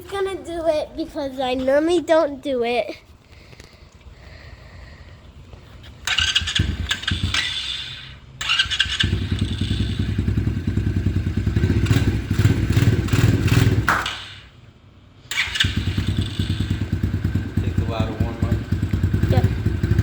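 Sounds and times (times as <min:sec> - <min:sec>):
dirt bike engine starting: 0:06.0 - 0:14.5, 0:15.3 - 0:20.0.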